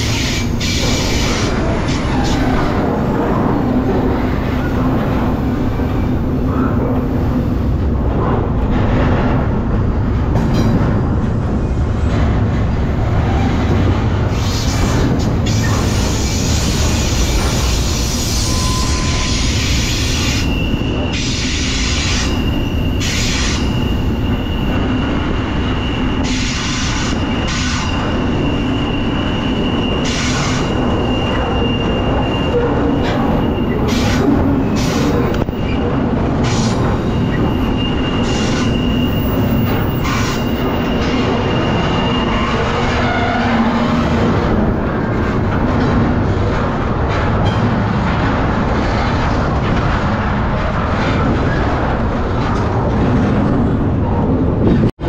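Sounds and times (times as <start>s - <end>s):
freight train rumbling on rails: 0.0s - 55.0s
train clanks: 0.0s - 55.0s
high wheel squeal: 13.2s - 45.2s.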